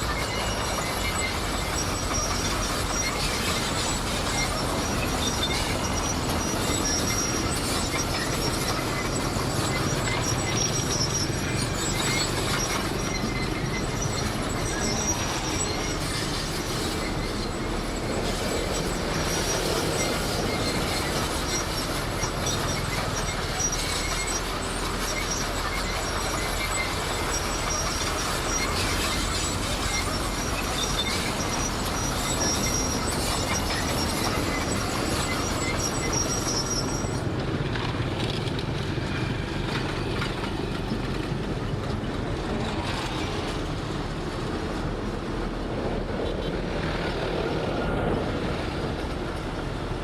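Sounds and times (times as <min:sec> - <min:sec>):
faint high squeal: 0:00.0 - 0:37.2
bulldozer diesel engine running: 0:00.0 - 0:50.0
steel tracks clanking: 0:00.0 - 0:50.0.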